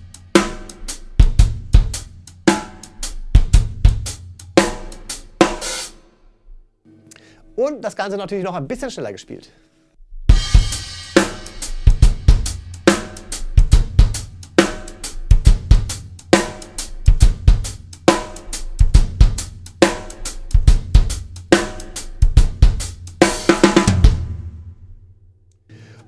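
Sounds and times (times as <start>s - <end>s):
shuffled hi-hat: 0.0s - 6.0s, 10.3s - 23.8s
heavy snare backbeat: 0.0s - 6.1s, 10.3s - 25.0s.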